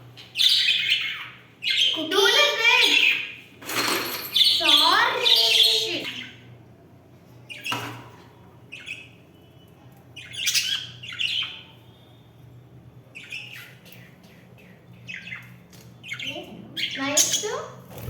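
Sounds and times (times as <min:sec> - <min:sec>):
budgies chirping and squawking: 0:00.2 - 0:03.5, 0:04.2 - 0:06.5, 0:07.4 - 0:09.3, 0:10.2 - 0:11.8, 0:13.1 - 0:18.0.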